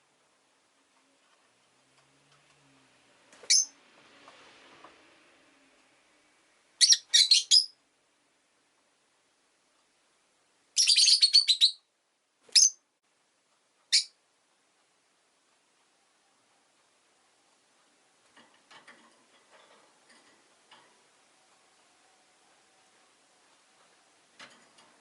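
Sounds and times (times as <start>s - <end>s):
lovebird chirping: 3.4s - 3.8s, 6.8s - 7.8s, 10.7s - 11.9s, 12.5s - 12.8s, 13.9s - 14.2s.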